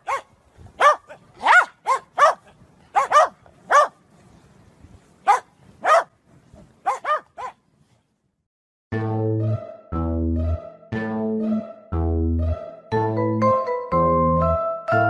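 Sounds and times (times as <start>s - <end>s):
dog barking: 0.0s - 4.0s, 5.2s - 6.1s, 6.8s - 7.6s
music with held notes: 8.9s - 15.0s.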